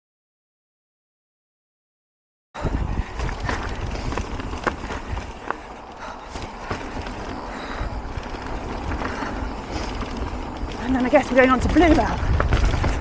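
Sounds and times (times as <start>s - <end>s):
bike knocking and rattling: 2.6s - 13.0s
tyres rolling over dirt and stones: 2.6s - 13.0s
wind rumbling on microphone: 2.6s - 13.0s.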